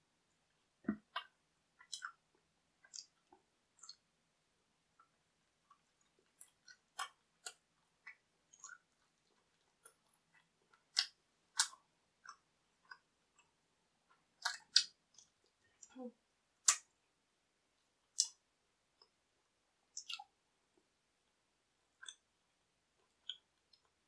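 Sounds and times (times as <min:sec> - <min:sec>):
mouth clicks: 0:14.4 - 0:16.0, 0:18.1 - 0:18.4, 0:19.9 - 0:20.3.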